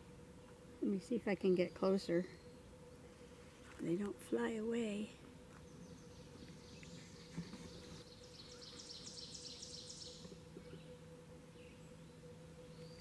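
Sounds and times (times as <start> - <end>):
low hum: 0.0 - 13.0
distant bird trilling: 5.6 - 13.0.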